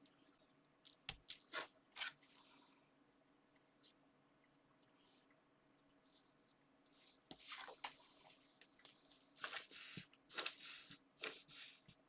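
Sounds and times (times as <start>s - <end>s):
paper and card rustling: 6.9s - 8.0s, 9.4s - 11.8s.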